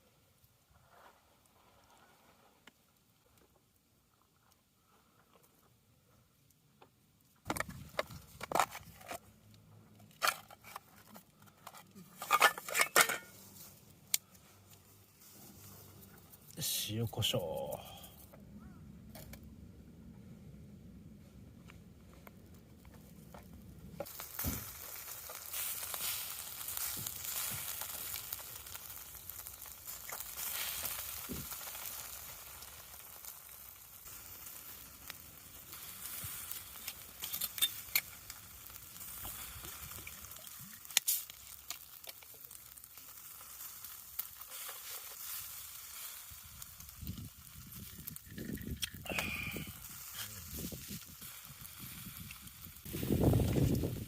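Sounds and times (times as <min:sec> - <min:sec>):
meat sizzling in a pan: 0:24.0 - 0:48.3, 0:49.0 - 0:54.0.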